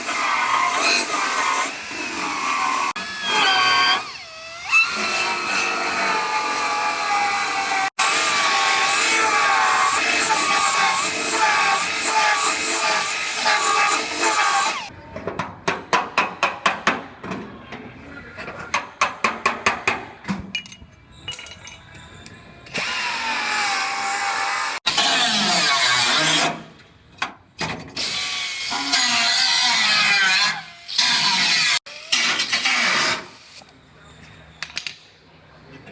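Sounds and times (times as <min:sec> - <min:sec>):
power tool grinding steel: 0:00.0 - 0:14.9, 0:28.0 - 0:33.6.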